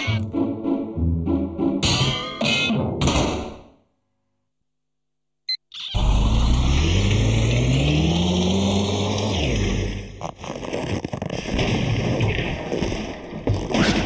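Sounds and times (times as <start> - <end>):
motor revving up: 6.0 - 10.2.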